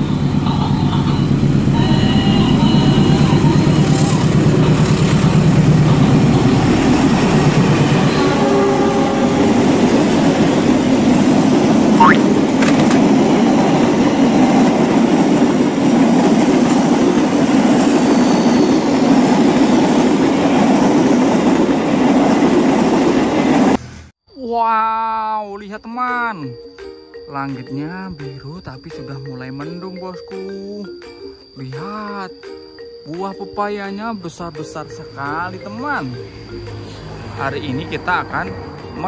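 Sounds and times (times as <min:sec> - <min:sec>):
rising chirp: 0:12.0 - 0:12.4.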